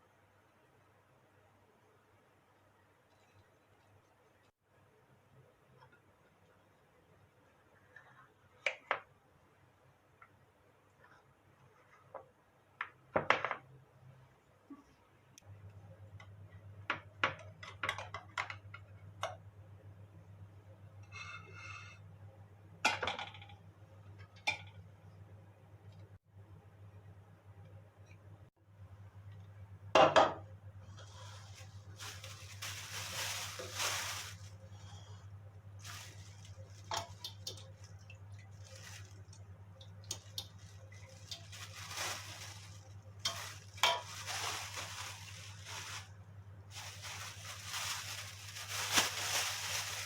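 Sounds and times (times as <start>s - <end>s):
low steady hum: 13.8s - 50.0s
hissing rustling noise: 30.9s - 34.6s.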